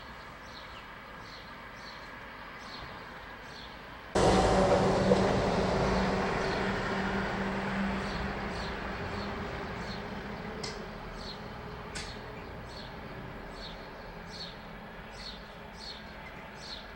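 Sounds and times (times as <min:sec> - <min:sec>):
loud rushing noise with hum: 0:04.2 - 0:11.9.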